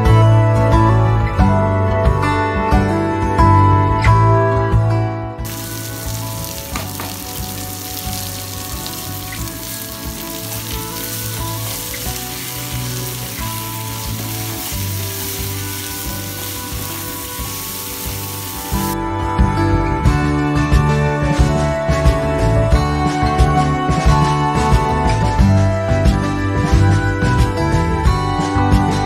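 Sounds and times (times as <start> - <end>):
food sizzling in hot oil: 5.5 - 19.0.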